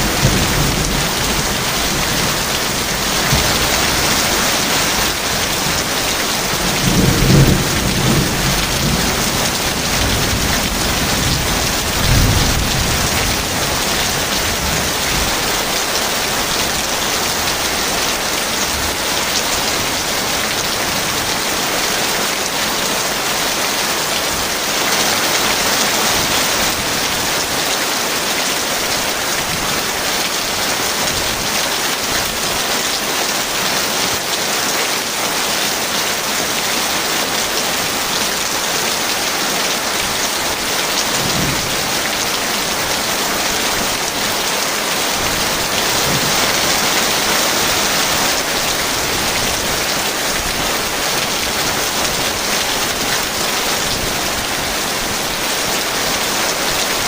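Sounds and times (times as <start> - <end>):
thunder rumbling: 0.0 - 15.8
heavy rain falling: 0.0 - 57.0.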